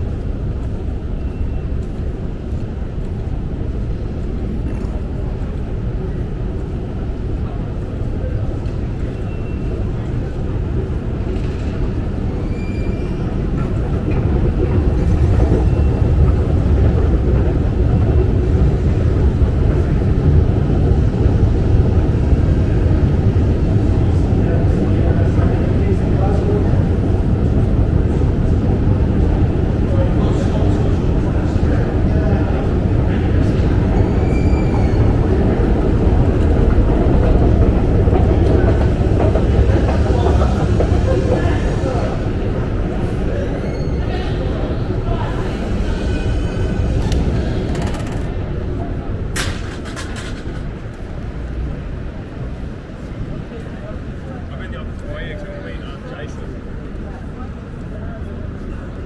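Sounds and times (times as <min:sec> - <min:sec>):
underground station rumble: 0:00.0 - 0:59.0
faint train squeal: 0:00.8 - 0:02.3, 0:08.2 - 0:10.6, 0:11.4 - 0:17.4, 0:29.9 - 0:35.8, 0:39.9 - 0:48.4.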